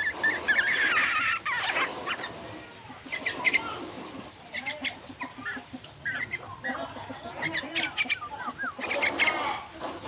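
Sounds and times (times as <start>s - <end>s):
pet bird chirping: 0.0s - 2.4s, 3.0s - 3.8s, 4.4s - 9.6s.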